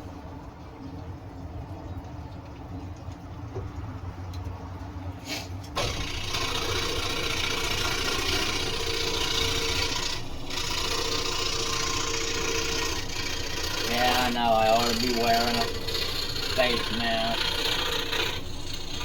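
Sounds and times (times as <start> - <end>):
scroll saw running: 5.8 - 19.0.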